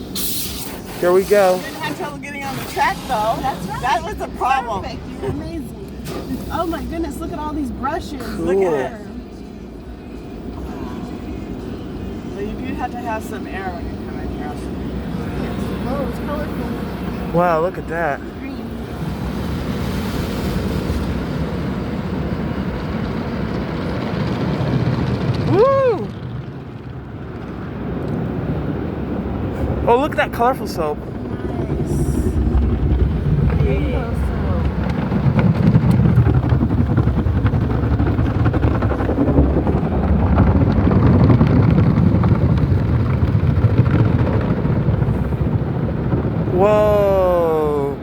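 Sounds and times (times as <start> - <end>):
car wash spray and brushes: 0.0 - 4.4, 6.0 - 7.7, 18.4 - 25.4
low rumble: 1.8 - 48.0.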